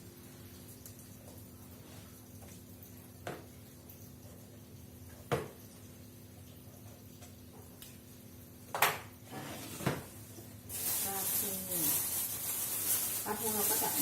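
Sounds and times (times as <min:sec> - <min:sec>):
rustling: 0:10.7 - 0:14.0.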